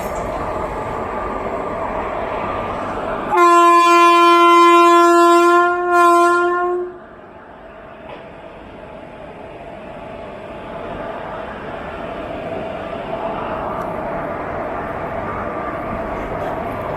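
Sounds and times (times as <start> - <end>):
train rumble: 0.0 - 16.9
locomotive horn blast: 3.3 - 7.0.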